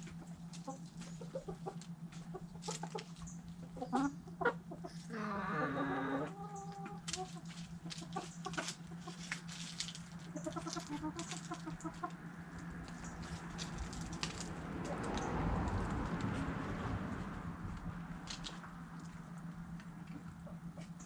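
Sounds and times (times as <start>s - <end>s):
chickens clucking: 0.0s - 16.3s, 17.8s - 21.0s.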